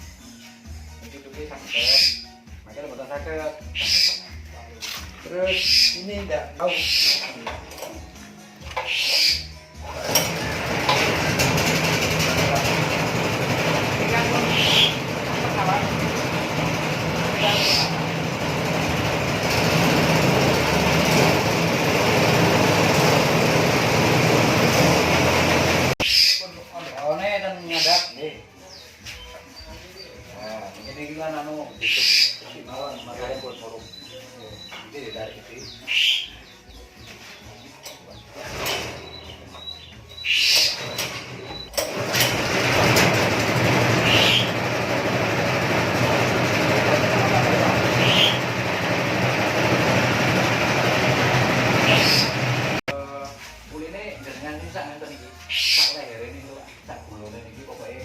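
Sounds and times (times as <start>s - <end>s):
petrol engine running steadily: 9.9s - 26.0s, 41.0s - 52.9s.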